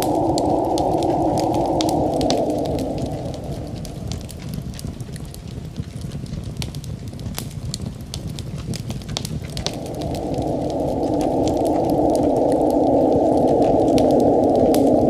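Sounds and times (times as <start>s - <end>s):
low rumble: 0.0s - 6.7s, 8.4s - 15.0s
wood fire crackling and popping: 0.0s - 15.0s
rushing sound: 9.6s - 15.0s.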